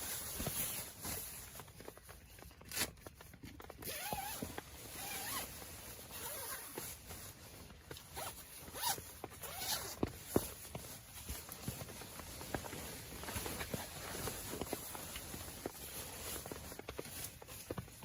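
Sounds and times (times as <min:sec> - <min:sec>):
zipper being pulled: 0:03.8 - 0:07.0, 0:08.0 - 0:10.1.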